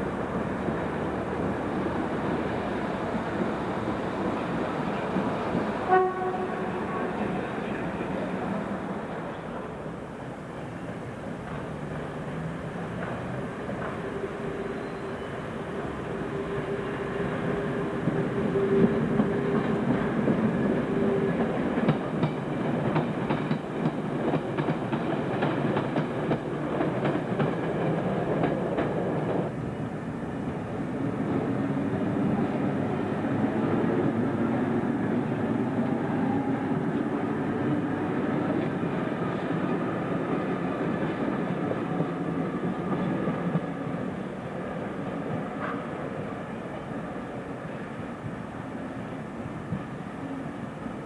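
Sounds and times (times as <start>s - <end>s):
train running drone: 0.0s - 51.0s
train wheels clicking over rail joints: 10.6s - 14.4s, 18.0s - 29.6s.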